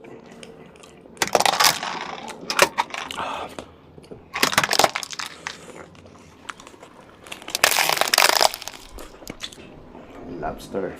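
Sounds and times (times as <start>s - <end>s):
shell cracking: 1.2s - 3.3s, 4.3s - 9.6s.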